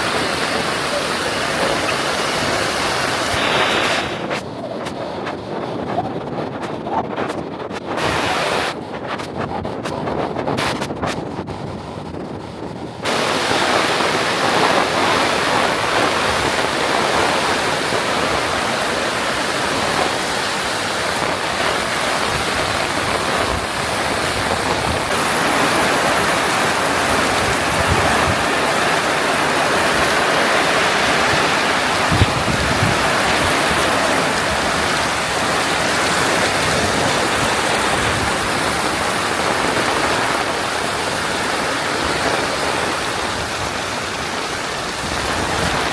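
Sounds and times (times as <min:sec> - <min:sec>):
heavy rain falling: 0:00.0 - 0:09.8, 0:13.0 - 0:45.9.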